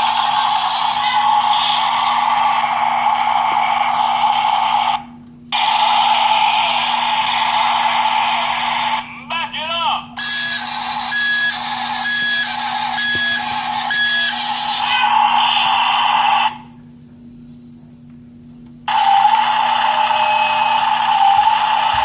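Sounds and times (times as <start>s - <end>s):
toy motor-like sound: 0.0s - 5.0s, 5.6s - 9.1s, 10.2s - 16.6s, 18.9s - 22.0s
repeating toy beep: 10.2s - 15.0s.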